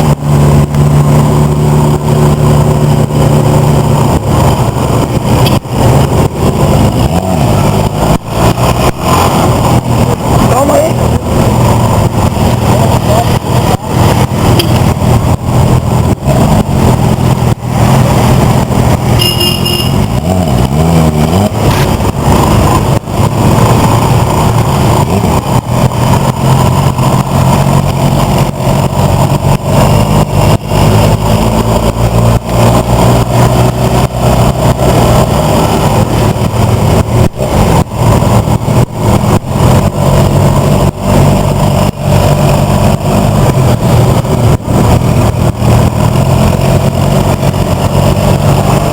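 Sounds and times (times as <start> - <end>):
motorcycle engines running: 0.0 - 48.9
high-pitched tone: 19.1 - 20.1.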